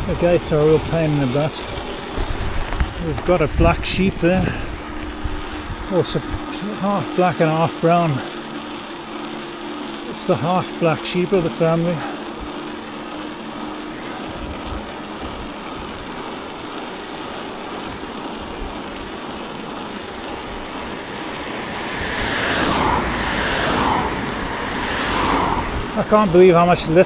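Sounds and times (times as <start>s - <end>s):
wind on microphone: 0.0s - 6.5s, 19.4s - 27.0s
road traffic passing: 0.0s - 27.0s.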